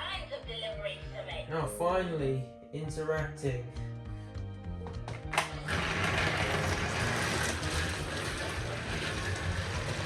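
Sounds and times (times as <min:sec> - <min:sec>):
toy train motor whirring: 0:05.6 - 0:10.0.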